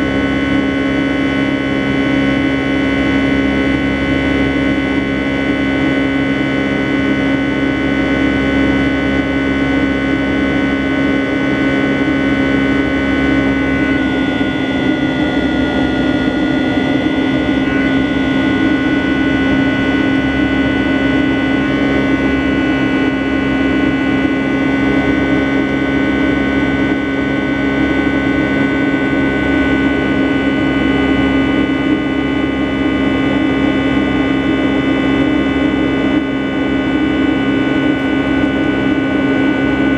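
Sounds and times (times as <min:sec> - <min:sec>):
jet cabin drone: 0:00.0 - 0:39.9.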